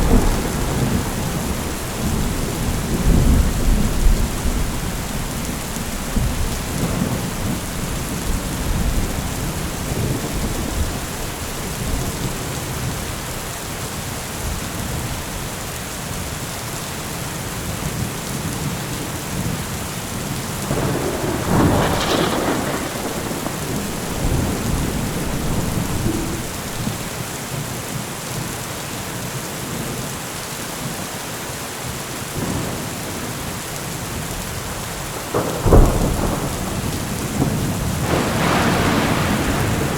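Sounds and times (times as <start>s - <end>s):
thunder rumbling: 0.0s - 13.0s, 20.6s - 27.1s, 35.1s - 39.9s
steady rain falling: 0.0s - 39.9s.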